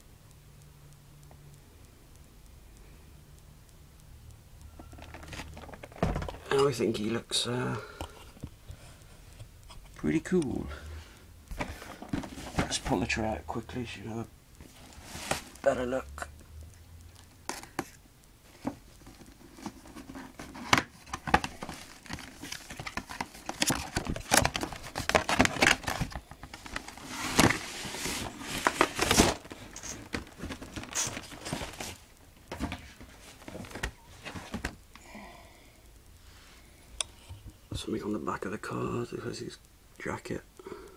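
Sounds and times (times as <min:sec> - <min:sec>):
plastic packaging crinkling: 0:04.8 - 0:07.1, 0:18.6 - 0:34.8.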